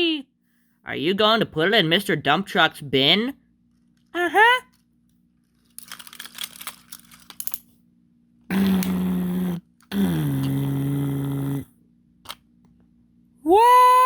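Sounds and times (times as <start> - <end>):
toy handling rustling and clicking: 3.6 - 7.8
person making engine noises: 8.5 - 11.8.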